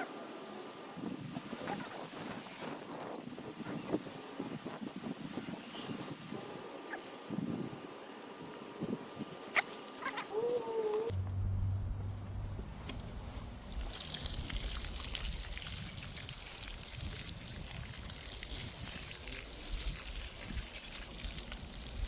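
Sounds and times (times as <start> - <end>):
water spraying onto soil: 12.9 - 22.0.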